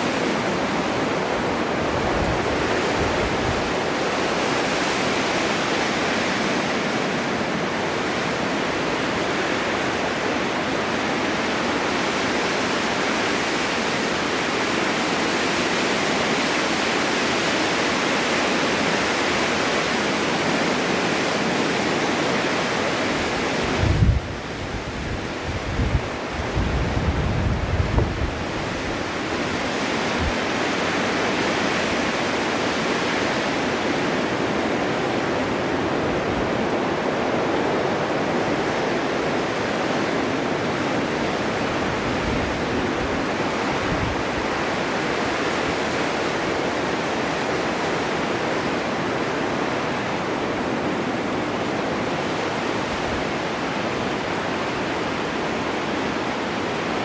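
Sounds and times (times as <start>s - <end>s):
snowstorm wind blowing: 0.0s - 57.0s
low rumbling gusts: 23.0s - 51.8s.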